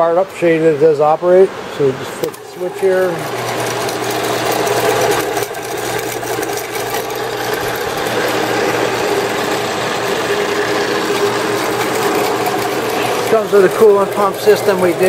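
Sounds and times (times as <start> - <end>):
band saw humming: 0.0 - 15.0.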